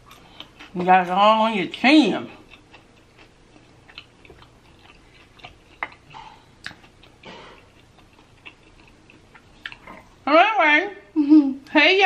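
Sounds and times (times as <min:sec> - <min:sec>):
chewing with wet mouth smacks: 0:02.4 - 0:10.1.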